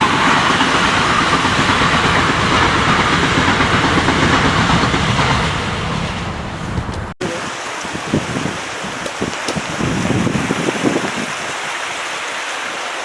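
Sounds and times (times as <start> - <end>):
train wheels on rails: 0.0 - 7.2.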